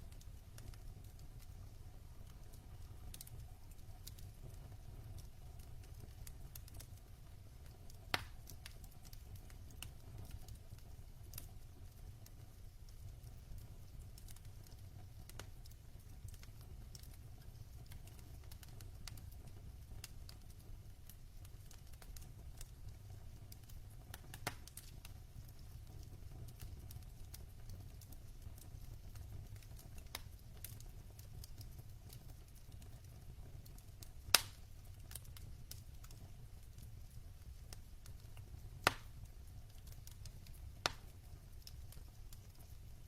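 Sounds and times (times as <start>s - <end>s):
fire popping: 0.0s - 43.0s
log fire rumbling and crackling: 0.0s - 43.0s.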